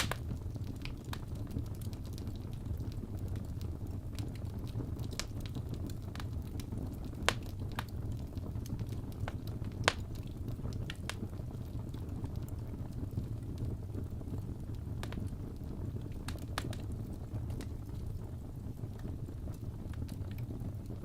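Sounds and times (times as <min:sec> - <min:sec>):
sharp pops: 0:00.0 - 0:00.2
wood fire crackling: 0:00.0 - 0:21.0.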